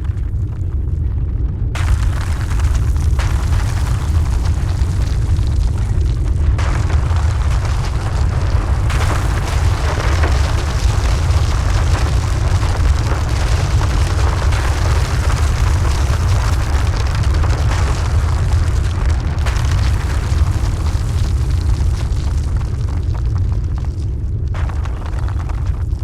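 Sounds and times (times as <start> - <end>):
loud low rumble: 0.0 - 26.0
rushing noise: 1.8 - 21.7.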